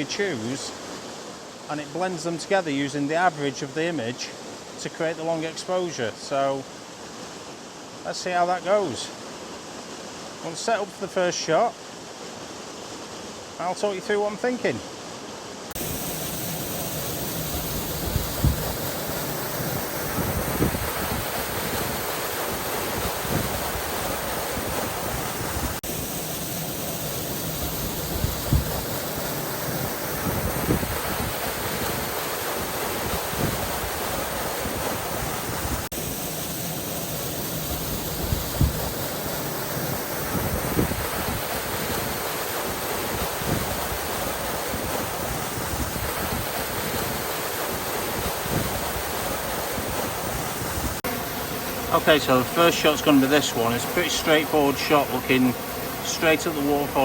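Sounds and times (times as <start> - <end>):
small waterfall rushing: 0.0 - 57.0
wind buffeting microphone: 17.6 - 18.8, 20.1 - 22.0.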